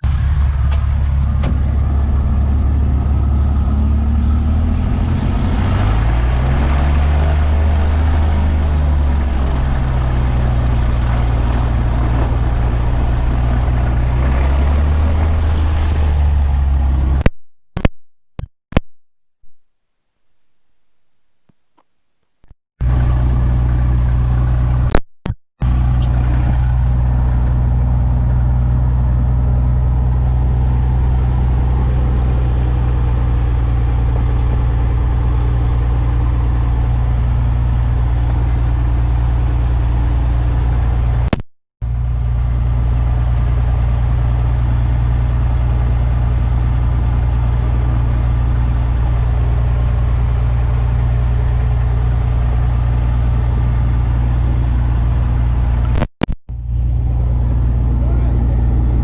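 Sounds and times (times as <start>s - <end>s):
airplane piston engine droning: 0.0s - 16.0s.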